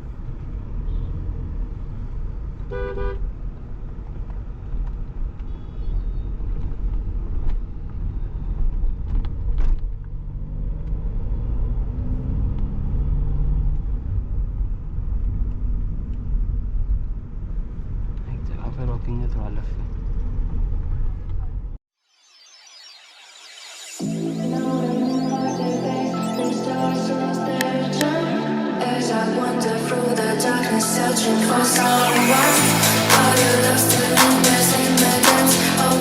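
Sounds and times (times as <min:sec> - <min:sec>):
car engine and road rumble: 0:00.0 - 0:21.8
car horn honk: 0:02.7 - 0:03.2.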